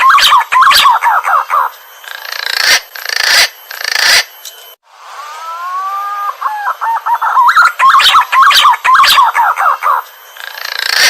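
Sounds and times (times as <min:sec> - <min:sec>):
pigeon warbling whistles: 0:00.0 - 0:01.7, 0:05.4 - 0:11.0.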